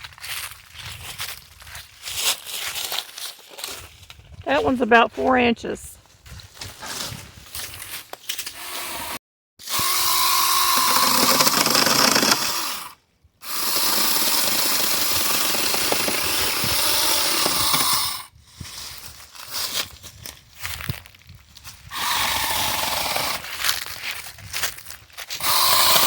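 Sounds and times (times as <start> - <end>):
rustling and handling noise: 0.4 - 8.4
chainsaw cutting through a branch: 8.3 - 20.0, 21.9 - 24.1, 25.3 - 26.0.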